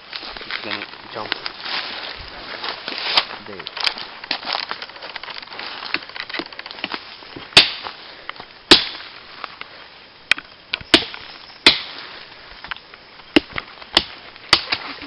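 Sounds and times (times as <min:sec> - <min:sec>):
machete chopping plant stalk: 0:07.6 - 0:07.9, 0:08.7 - 0:09.1, 0:10.9 - 0:12.0, 0:13.3 - 0:14.8.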